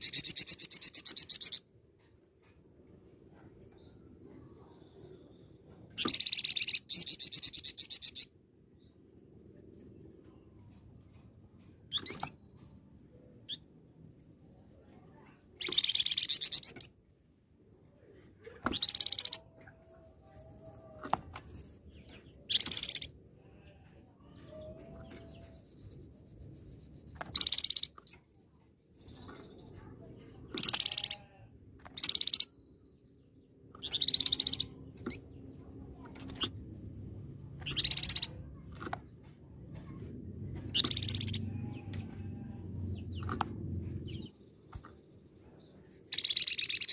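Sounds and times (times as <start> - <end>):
songbird singing trills: 3.7 - 8.9, 13.4 - 16.9, 18.5 - 38.6, 40.6 - 41.9, 44.1 - 46.9.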